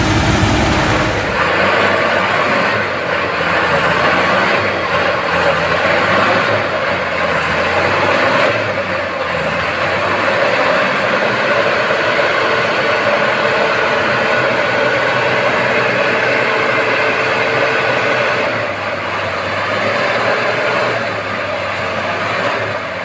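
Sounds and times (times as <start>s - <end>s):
faint high whine: 0.0s - 1.5s
heavy truck engine running: 0.0s - 21.5s.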